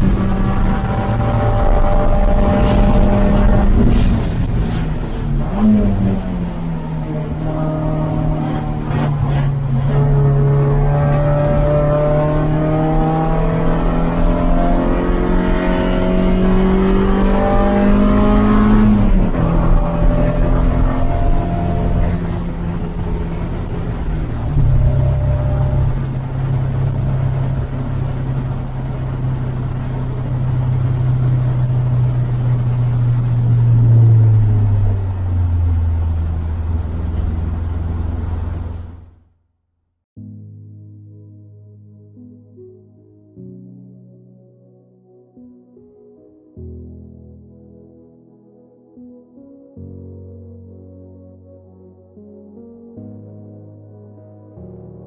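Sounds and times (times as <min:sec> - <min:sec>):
race car engine running hard: 0:00.0 - 0:39.1.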